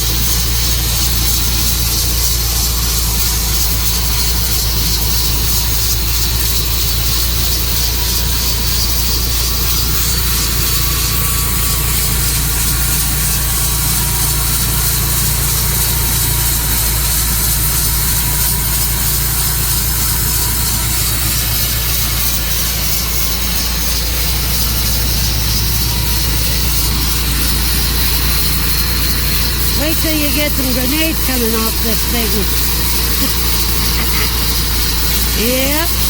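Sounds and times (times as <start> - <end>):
sawmill engine running: 0.0 - 36.0.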